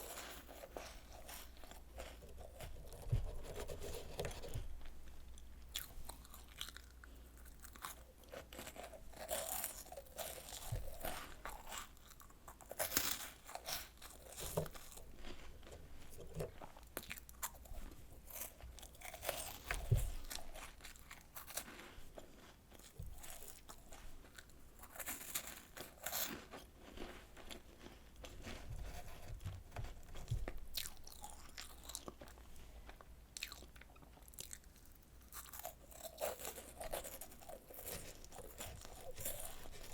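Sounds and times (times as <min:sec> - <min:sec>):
crunching and chewing snacks: 0:00.0 - 0:39.9.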